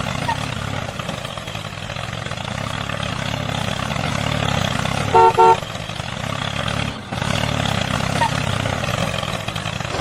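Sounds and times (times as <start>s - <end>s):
vehicle engine running: 0.0s - 10.0s
horn toots: 5.1s - 5.7s.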